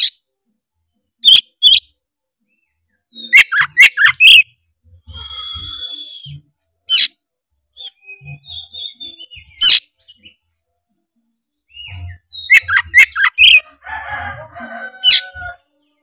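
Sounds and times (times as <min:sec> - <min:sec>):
bird singing: 0:02.5 - 0:07.2, 0:07.8 - 0:10.4, 0:11.6 - 0:13.8.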